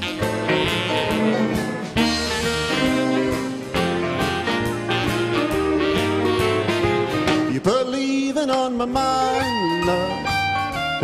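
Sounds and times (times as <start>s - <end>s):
steady drum beat: 0.0s - 11.0s
western swing band instrumental: 0.0s - 11.0s.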